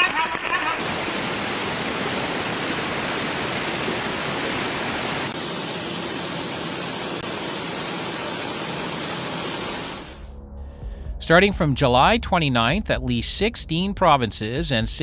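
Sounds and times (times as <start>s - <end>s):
floodwater roaring: 0.0s - 10.3s.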